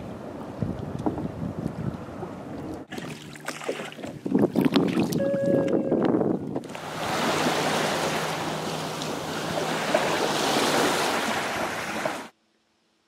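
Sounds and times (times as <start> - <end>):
wind buffeting microphone: 0.0 - 2.9, 4.0 - 7.6
ocean water splashing: 2.2 - 5.7, 6.5 - 12.3.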